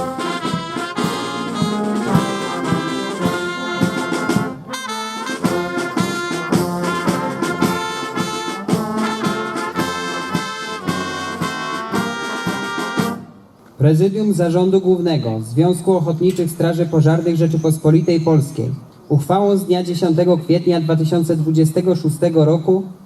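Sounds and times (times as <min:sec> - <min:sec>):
drum beats: 0:00.0 - 0:13.3
brass band playing: 0:00.0 - 0:13.5
trumpets and trombones: 0:00.0 - 0:13.5.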